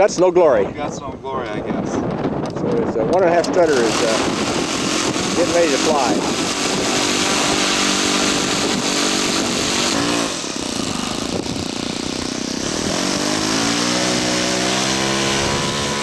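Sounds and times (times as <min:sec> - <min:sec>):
model airplane engine running: 0:03.3 - 0:16.0.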